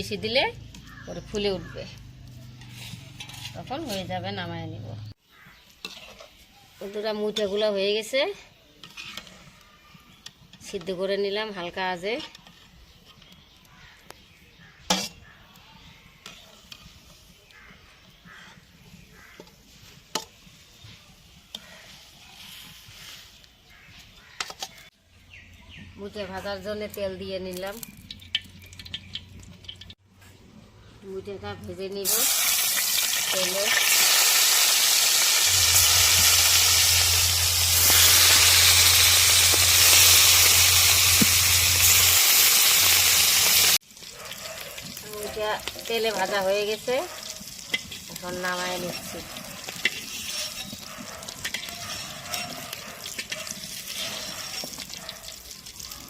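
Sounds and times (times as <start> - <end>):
dumplings sizzling in hot oil: 5.2 - 24.9, 26.7 - 30.0, 32.0 - 56.0
utensils clinking against pots: 47.6 - 55.0.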